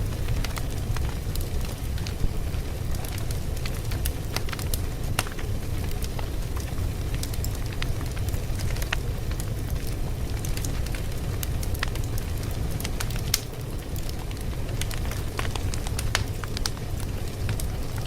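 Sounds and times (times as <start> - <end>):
low rumble: 0.0 - 2.6
fire crackling: 0.0 - 18.0.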